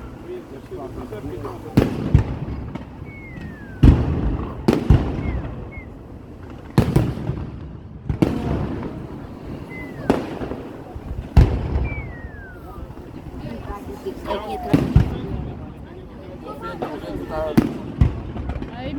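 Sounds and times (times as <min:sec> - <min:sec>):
faint falling whistles: 0:00.0 - 0:06.2, 0:09.1 - 0:15.4
rumbling echo: 0:00.0 - 0:16.4
firework shells bursting: 0:00.0 - 0:18.8.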